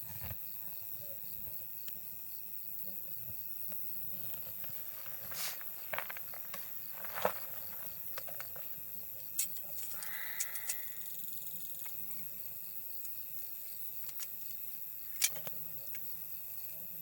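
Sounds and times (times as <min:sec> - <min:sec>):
insects chirring: 0:00.0 - 0:17.0
insect chirping in rapid pulses: 0:00.1 - 0:17.0
campfire crackling: 0:03.7 - 0:16.1.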